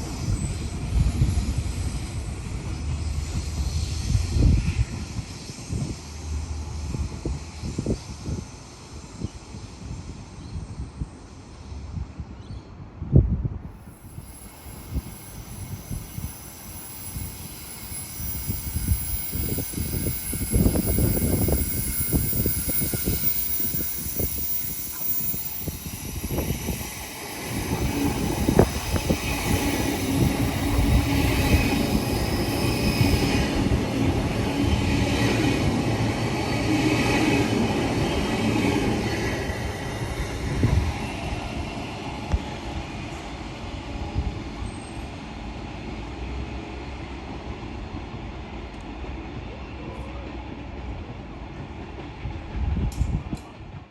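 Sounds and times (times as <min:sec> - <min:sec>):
train wheel and rail rumble: 0:00.0 - 0:53.9
train motor whine: 0:13.8 - 0:45.2.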